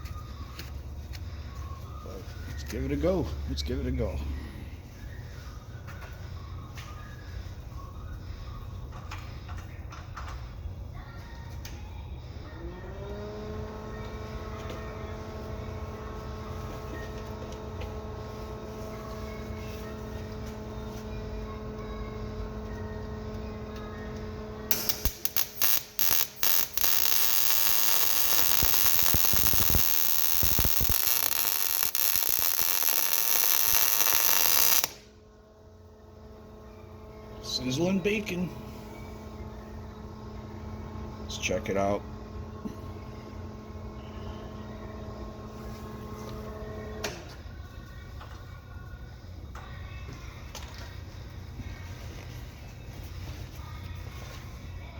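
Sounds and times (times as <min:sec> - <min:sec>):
machine hum: 0:12.0 - 0:49.6
welding arc crackling: 0:23.2 - 0:35.1.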